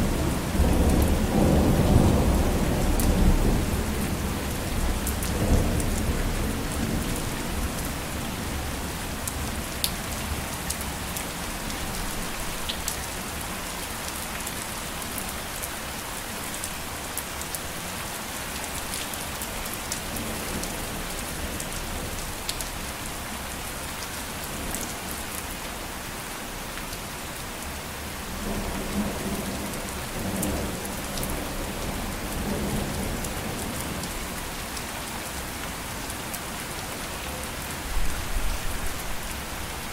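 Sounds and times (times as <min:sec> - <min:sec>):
low rumble of thunder: 0:00.0 - 0:09.6, 0:28.3 - 0:34.4
steady rain falling: 0:00.0 - 0:39.9.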